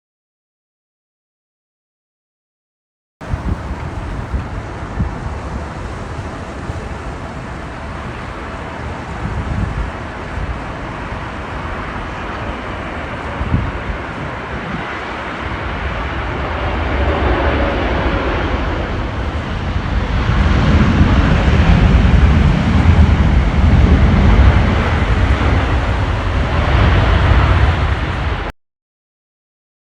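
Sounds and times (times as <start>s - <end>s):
jet engines on approach: 3.2s - 28.5s
wind buffeting microphone: 3.2s - 28.5s.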